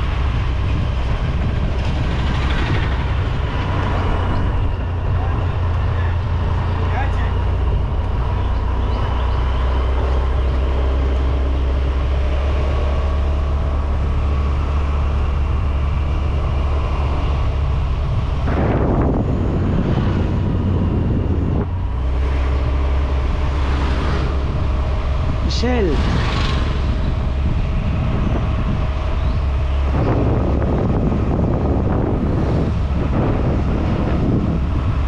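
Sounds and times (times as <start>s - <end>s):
rush of noise: 0.0s - 35.0s
vehicle rumble and road noise: 0.0s - 35.0s
wind on microphone: 0.0s - 35.0s.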